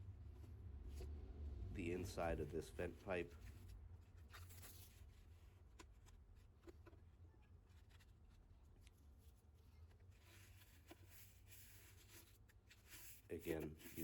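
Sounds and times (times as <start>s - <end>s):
brush scraping inside vent pipe: 10.1s - 14.0s.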